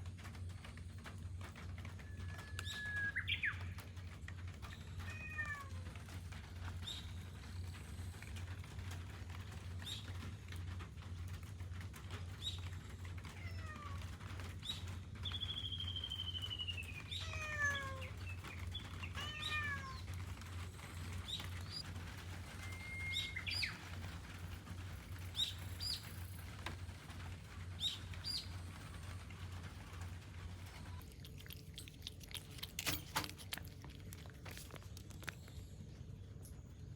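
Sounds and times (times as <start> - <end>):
cat meowing: 5.0 - 6.1, 13.3 - 14.1, 17.1 - 18.2, 18.9 - 20.3
steady low hum: 19.9 - 36.9.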